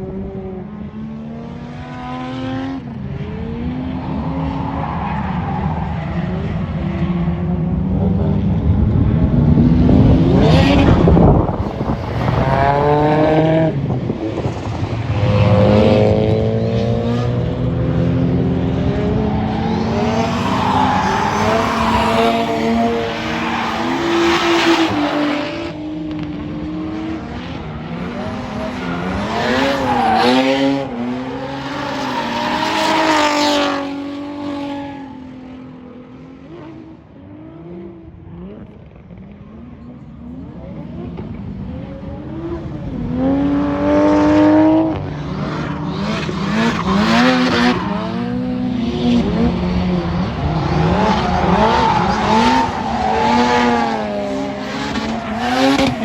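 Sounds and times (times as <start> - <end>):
car engines revving: 0.0 - 56.0
tires squealing: 4.0 - 7.1, 18.4 - 25.7, 27.3 - 35.6, 45.2 - 56.0.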